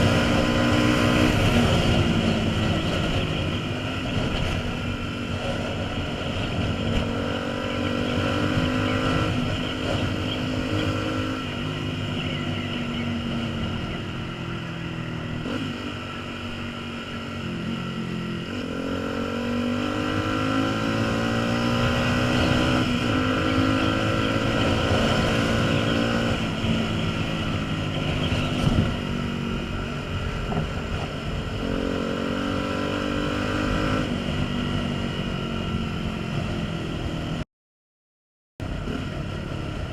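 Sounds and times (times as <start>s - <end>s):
wind noise on microphone: 0.0s - 14.2s, 20.8s - 37.1s
motorcycle engine revving: 0.0s - 37.4s.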